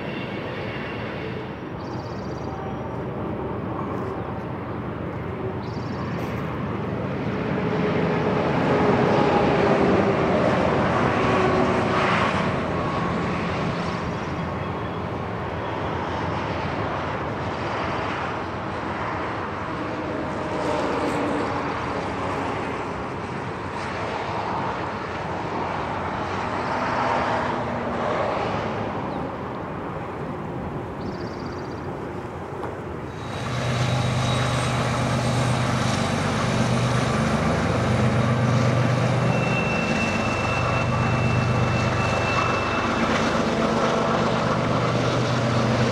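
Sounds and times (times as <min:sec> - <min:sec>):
diesel locomotive engine drone: 0:00.0 - 0:45.9
train wheels rumbling on rail: 0:00.0 - 0:45.9
thin high squeal: 0:33.1 - 0:36.0, 0:38.1 - 0:43.4.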